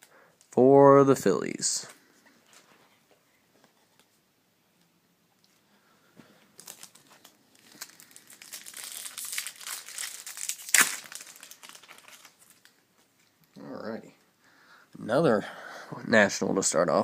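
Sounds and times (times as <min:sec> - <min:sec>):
wrapper tearing and crinkling: 0:06.6 - 0:12.8.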